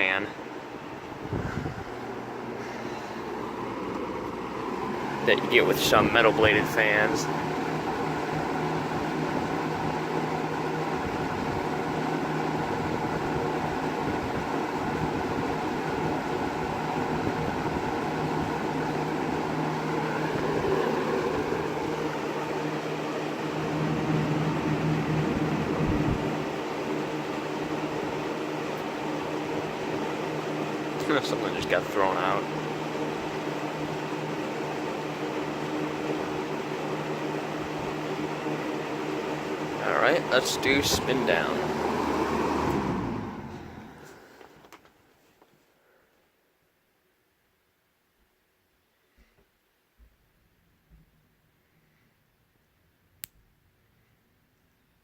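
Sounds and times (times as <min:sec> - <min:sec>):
box fan running: 0:00.0 - 0:45.0.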